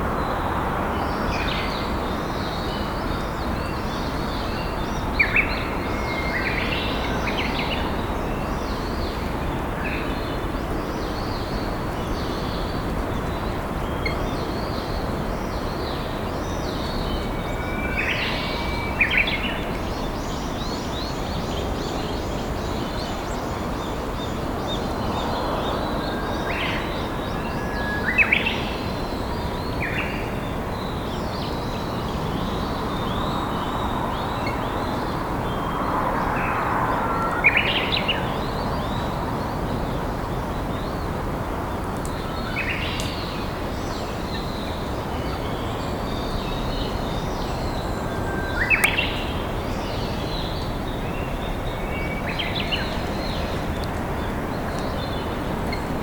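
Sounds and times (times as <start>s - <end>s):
bush warbler singing: 0.2s - 56.0s
river flowing: 48.5s - 56.0s.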